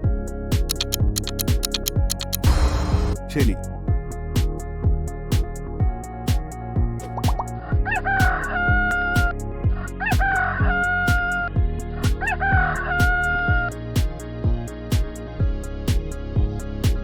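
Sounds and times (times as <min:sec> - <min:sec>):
background music with steady beat: 0:00.0 - 0:17.0
rooster crowing: 0:07.9 - 0:09.1.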